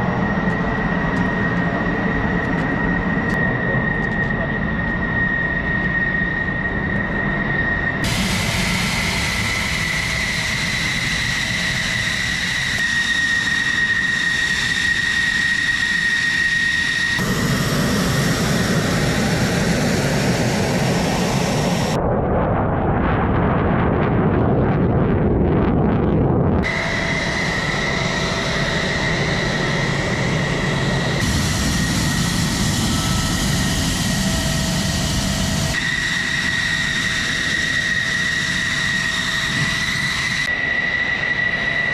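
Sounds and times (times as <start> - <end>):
jet engine running: 0.0 - 41.9.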